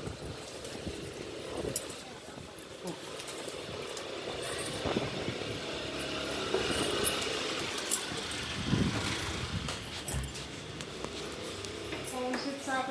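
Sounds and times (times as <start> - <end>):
vehicle engine running: 3.0 - 12.3.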